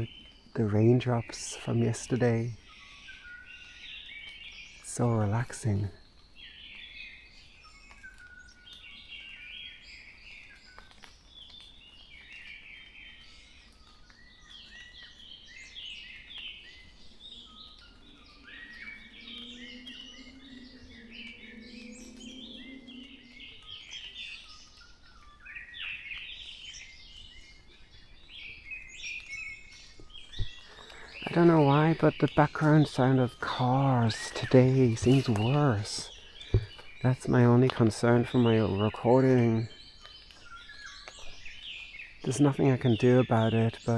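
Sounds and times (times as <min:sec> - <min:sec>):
birds chirping and trilling: 0:00.0 - 0:43.9
distant road traffic hum: 0:30.5 - 0:38.6.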